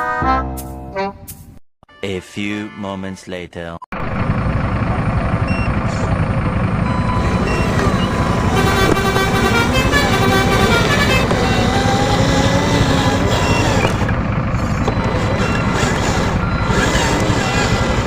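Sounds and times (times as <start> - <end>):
truck engine running: 3.9 - 18.0
truck horn: 6.8 - 18.0.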